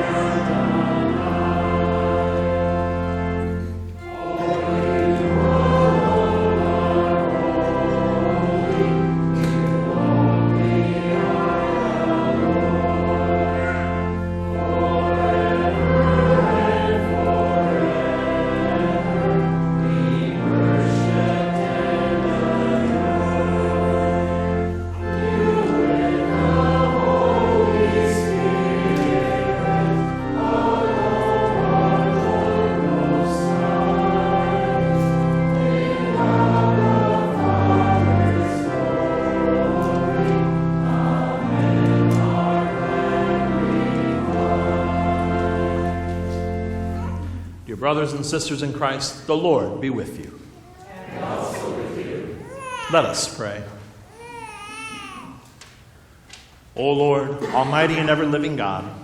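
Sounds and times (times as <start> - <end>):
organ-like bass notes: 0.0 - 47.0
many voices singing a hymn: 0.0 - 53.8, 56.8 - 59.0.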